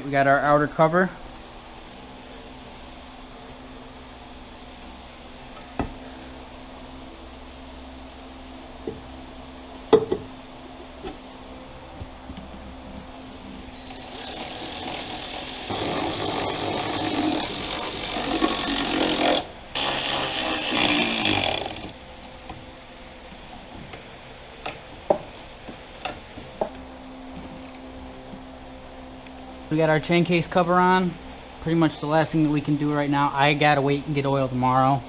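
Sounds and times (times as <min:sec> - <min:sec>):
power tool driving bolts: 0:13.9 - 0:22.4.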